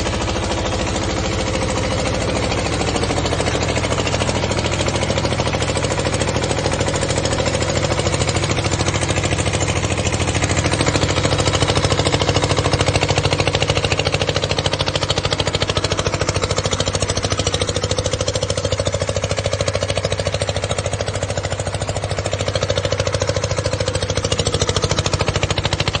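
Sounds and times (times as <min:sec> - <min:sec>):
winch diesel engine running: 0:00.0 - 0:26.0.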